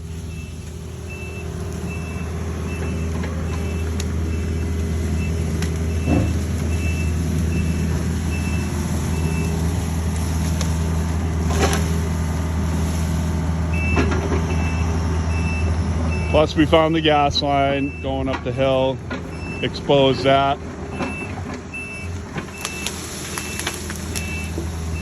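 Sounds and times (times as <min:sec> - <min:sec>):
excavator diesel engine: 0:00.0 - 0:25.0
travel alarm beeping: 0:00.1 - 0:09.6, 0:13.7 - 0:18.3, 0:21.0 - 0:25.0.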